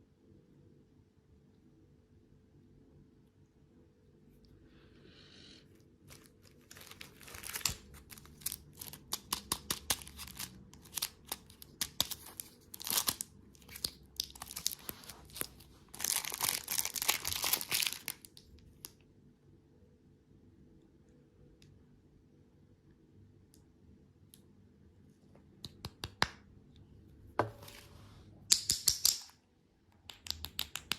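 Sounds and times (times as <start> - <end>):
packaging crinkling and tearing: 6.1 - 18.9.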